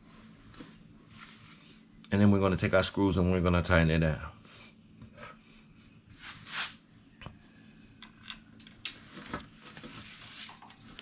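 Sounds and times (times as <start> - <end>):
tool scraping: 6.2 - 6.8.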